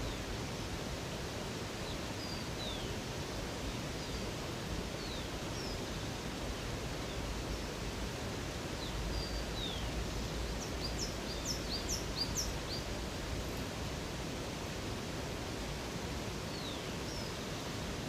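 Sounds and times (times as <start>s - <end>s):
flowing water: 0.0s - 18.0s
small birds chirping: 8.8s - 13.0s.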